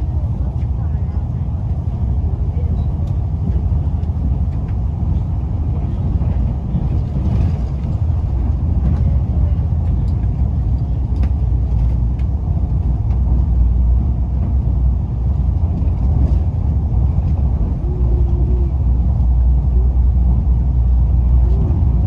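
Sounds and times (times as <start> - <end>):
electric train low rumble: 0.0 - 22.0.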